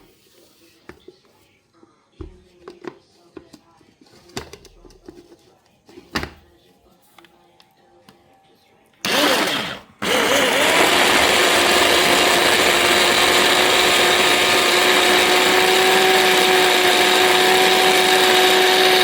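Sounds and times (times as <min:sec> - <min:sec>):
electric blender motor whining: 0:09.0 - 0:19.0.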